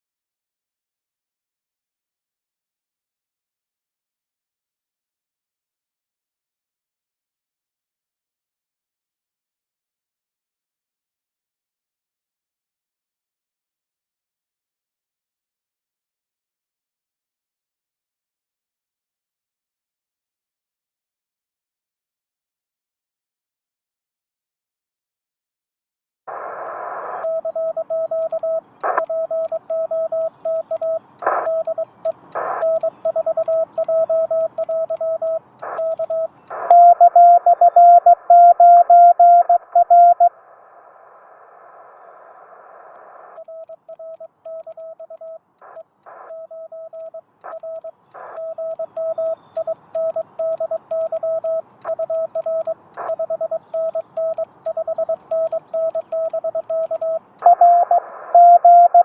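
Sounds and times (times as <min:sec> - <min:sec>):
radio receiver hiss: 0:26.3 - 0:36.8
static clicks: 0:26.3 - 0:40.3, 0:42.8 - 0:59.0
morse code tone: 0:27.2 - 0:40.3, 0:43.4 - 0:59.0.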